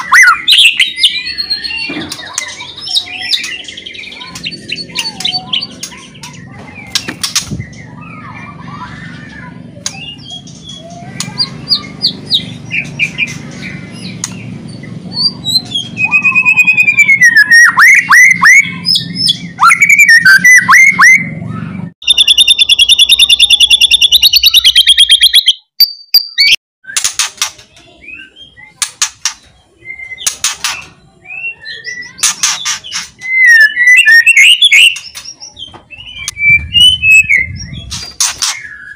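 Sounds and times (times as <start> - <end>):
bird singing whistled phrases: 0.0 - 6.0, 15.2 - 21.4, 33.2 - 38.9.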